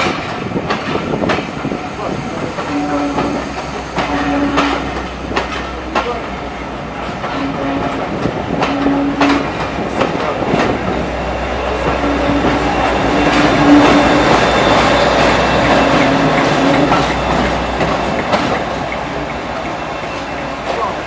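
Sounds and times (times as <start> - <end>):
train coaches rumbling past: 0.0 - 21.0
wheels clicking over rail joints: 11.8 - 21.0.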